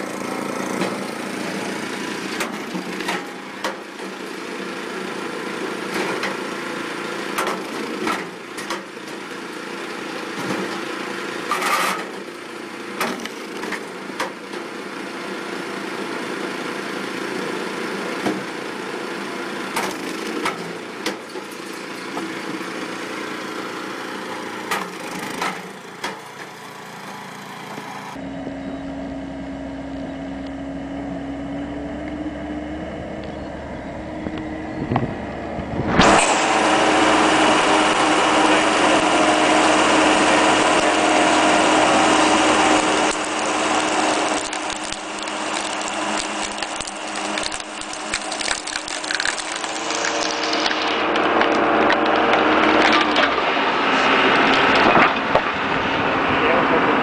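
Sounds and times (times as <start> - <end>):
motor hum: 12.2 - 57.0
wood crackling and splintering: 36.0 - 55.6.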